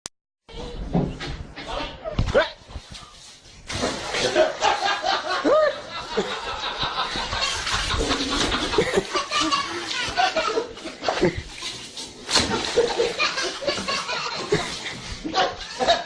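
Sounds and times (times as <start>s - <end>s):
people laughing and chattering: 4.0s - 11.7s.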